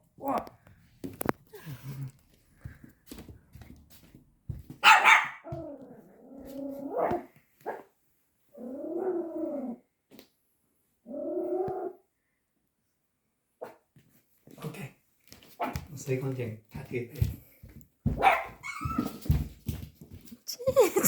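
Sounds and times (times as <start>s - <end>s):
puppy barking and growling: 4.8s - 7.9s.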